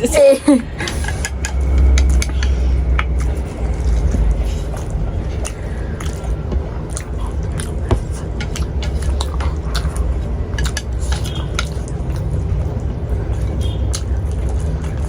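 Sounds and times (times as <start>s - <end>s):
steady low hum: 0.0s - 15.0s
chewing: 0.8s - 15.0s.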